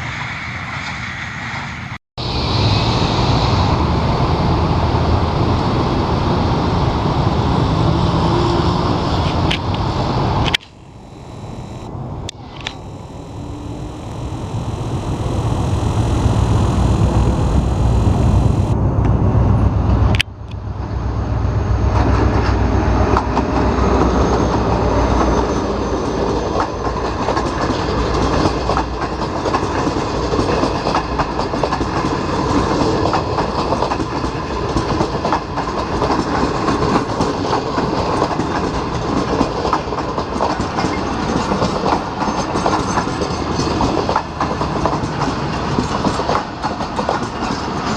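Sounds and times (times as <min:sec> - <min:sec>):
locomotive engine drone: 0:02.4 - 0:19.0
train wheels clattering on rails: 0:26.1 - 0:47.9.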